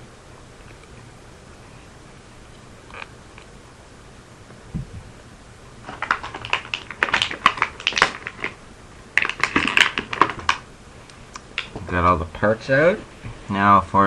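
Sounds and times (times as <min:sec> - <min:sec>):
soft thump: 0:04.7 - 0:05.2
packaging crinkling: 0:05.8 - 0:10.7.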